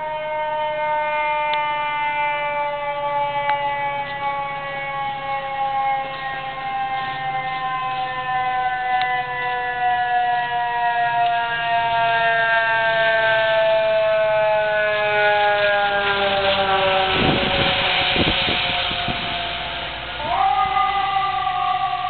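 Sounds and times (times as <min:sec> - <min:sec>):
siren wailing: 0:00.0 - 0:22.0.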